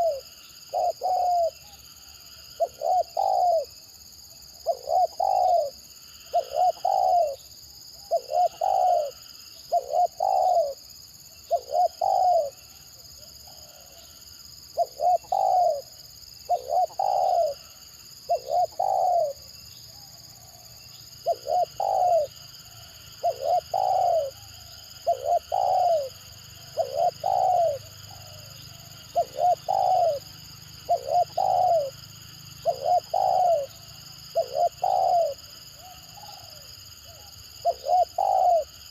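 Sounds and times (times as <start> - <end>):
dove cooing: 0.0 - 1.8, 2.5 - 3.8, 4.6 - 7.4, 8.0 - 14.1, 14.7 - 32.0, 32.6 - 38.9.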